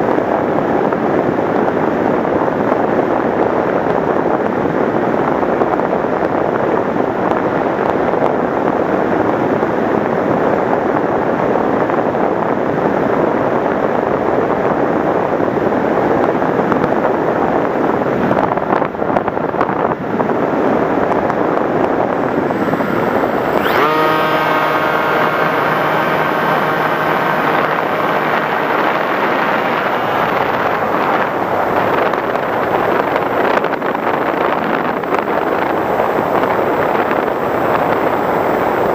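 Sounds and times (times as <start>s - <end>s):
wind rushing over microphone: 0.0s - 38.9s
motor whine: 21.6s - 38.9s.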